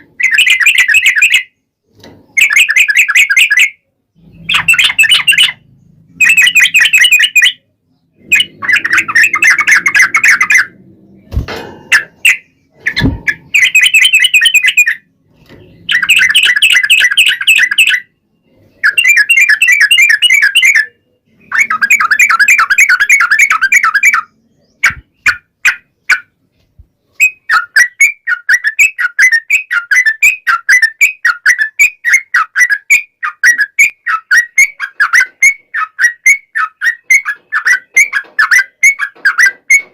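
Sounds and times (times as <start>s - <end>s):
low thumps: 10.8s - 12.0s, 12.8s - 13.6s.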